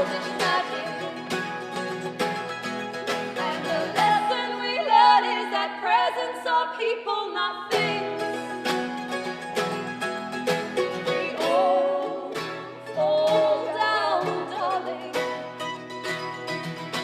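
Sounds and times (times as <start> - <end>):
woman singing: 0.0 - 1.7, 3.3 - 8.9, 10.9 - 15.6
strummed acoustic strings: 0.0 - 6.3, 7.7 - 17.0.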